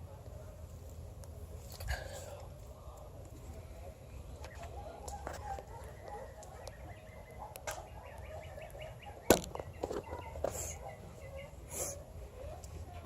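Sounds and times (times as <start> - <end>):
sharp crack: 7.6 - 7.9.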